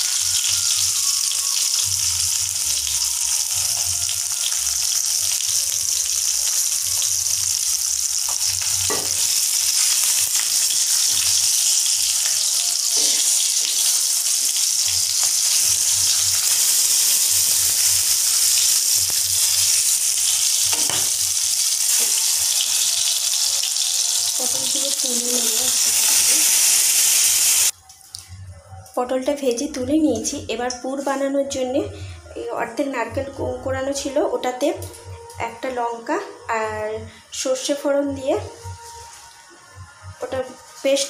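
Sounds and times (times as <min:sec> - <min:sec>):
vegetables sizzling in oil: 0:00.0 - 0:27.8.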